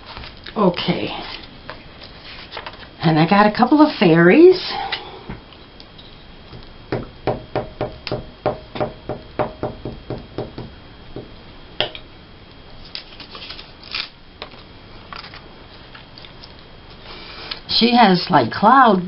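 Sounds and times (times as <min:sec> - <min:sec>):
paper rustling: 0:12.8 - 0:14.1.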